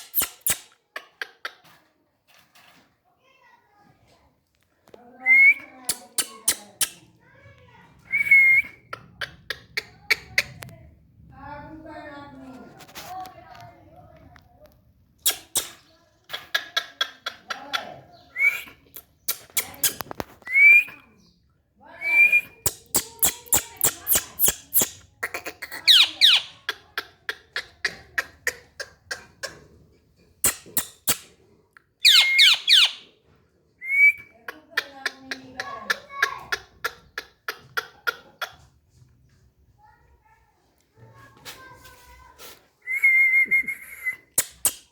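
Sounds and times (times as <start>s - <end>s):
parrot chirps and screeches: 0.0s - 0.7s, 5.9s - 7.0s, 15.2s - 17.4s, 22.6s - 26.7s, 30.4s - 31.4s, 32.0s - 33.1s, 44.0s - 44.9s
parakeet clicking calls: 0.0s - 1.6s, 5.9s - 7.0s, 15.2s - 17.8s, 22.6s - 29.6s, 30.4s - 31.3s, 32.0s - 33.1s, 44.3s - 44.9s
parakeet whistle: 32.0s - 33.0s.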